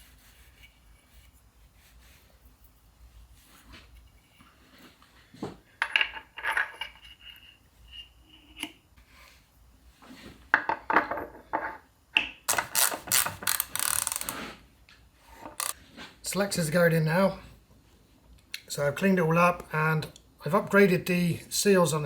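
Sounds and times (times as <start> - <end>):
metal parts and tools clinking: 12.5 - 14.4, 15.6 - 15.8
rattling clicks: 12.5 - 14.4, 15.6 - 15.8.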